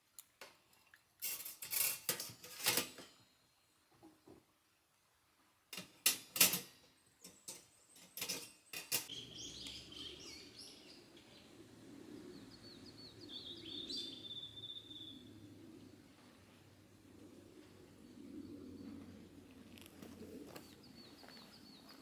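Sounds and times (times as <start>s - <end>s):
low background noise: 0.0s - 22.0s
songbirds chirping: 6.8s - 22.0s
bird trilling: 9.1s - 11.5s.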